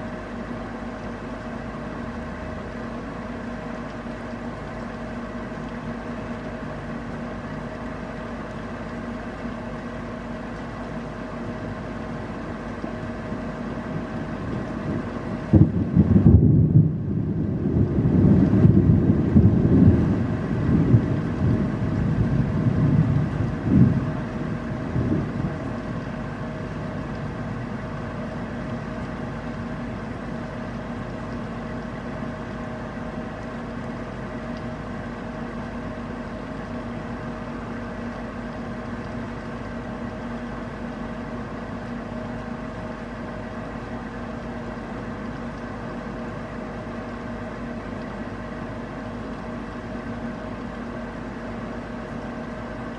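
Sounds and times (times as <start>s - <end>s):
constant low hum: 0.0s - 52.9s
steady rain: 0.0s - 52.9s
thunder rumbling: 14.9s - 26.5s.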